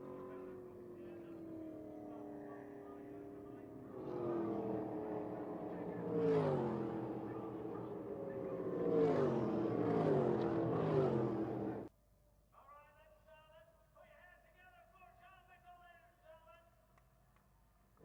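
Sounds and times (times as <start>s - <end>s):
stock car engines running hard: 0.0s - 11.9s.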